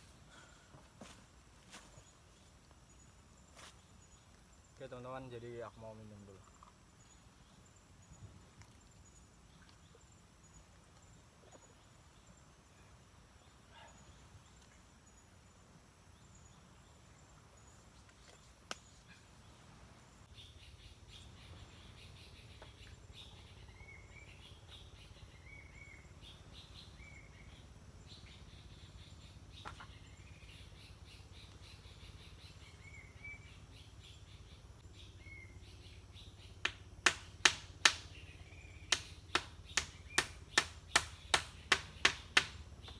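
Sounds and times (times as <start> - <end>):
forest ambience: 0.0 - 42.9
bird chirping: 2.0 - 42.9
loud sharp knocks: 36.6 - 38.1, 38.9 - 42.6.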